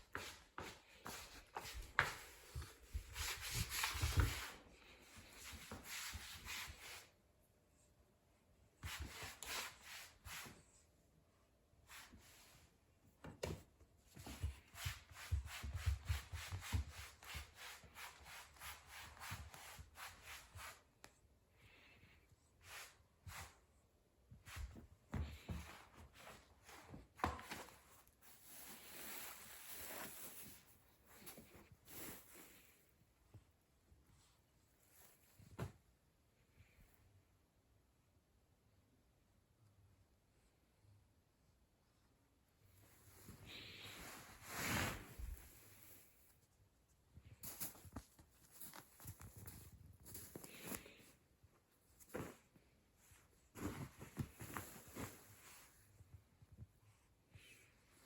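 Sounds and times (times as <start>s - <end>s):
cloth rustling: 42.8s - 46.5s, 47.4s - 56.7s.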